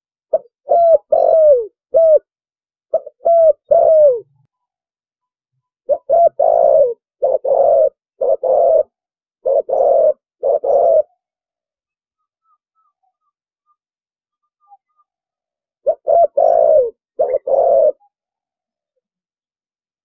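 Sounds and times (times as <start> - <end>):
dove cooing: 0.3 - 2.3, 2.9 - 4.4, 5.9 - 11.3, 15.8 - 18.3.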